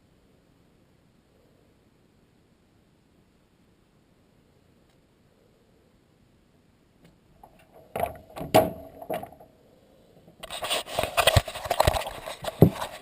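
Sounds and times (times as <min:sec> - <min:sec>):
knocks: 0:07.4 - 0:09.4.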